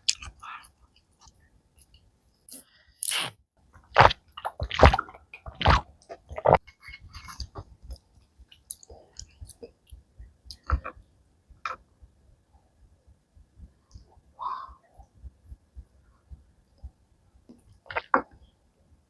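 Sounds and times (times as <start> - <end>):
chewing and mouth clicks: 0.0 - 2.0, 3.9 - 11.0
person slurping: 3.0 - 3.3, 4.0 - 7.6.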